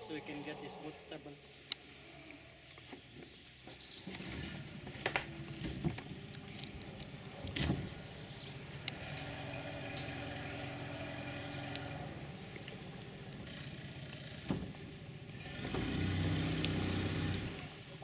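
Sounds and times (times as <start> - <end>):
outboard motor running slowly: 3.9 - 18.0.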